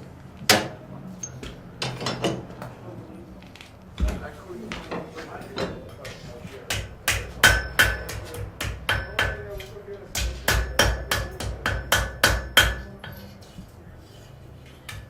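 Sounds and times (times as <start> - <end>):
hammer striking metal on anvil: 6.7 - 13.5.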